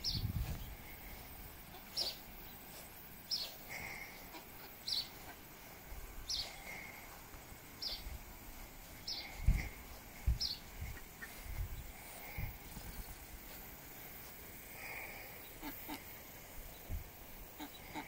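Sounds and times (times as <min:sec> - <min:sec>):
bird calling: 0:00.0 - 0:02.7, 0:03.3 - 0:05.6, 0:06.2 - 0:07.1, 0:09.0 - 0:09.8, 0:14.8 - 0:16.8, 0:17.4 - 0:18.0.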